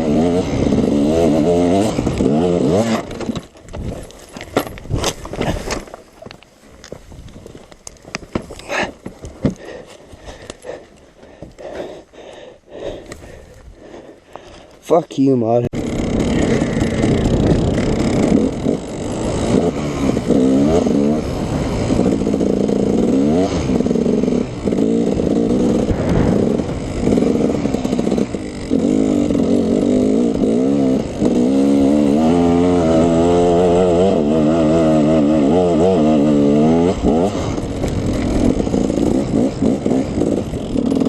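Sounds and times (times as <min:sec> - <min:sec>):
dirt bike engine revving: 0:00.0 - 0:03.4, 0:15.7 - 0:41.0.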